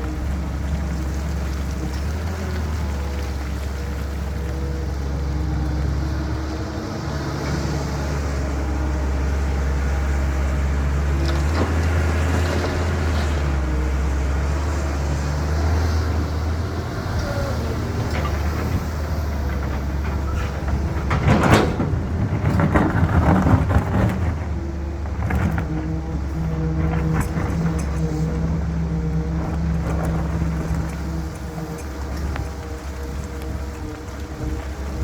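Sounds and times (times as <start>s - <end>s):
excavator diesel engine running: 0.0s - 35.0s
clattering and scraping: 17.8s - 35.0s.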